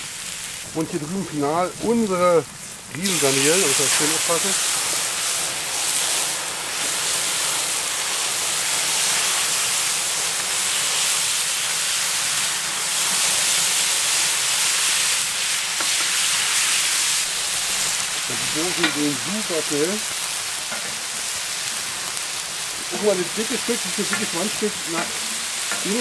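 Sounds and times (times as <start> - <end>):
seafood sizzling on grill plate: 0.0 - 26.0.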